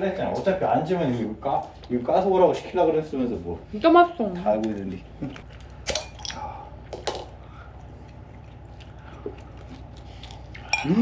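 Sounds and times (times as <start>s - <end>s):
steady low hum: 0.0s - 11.0s
person chewing pizza: 4.4s - 11.0s.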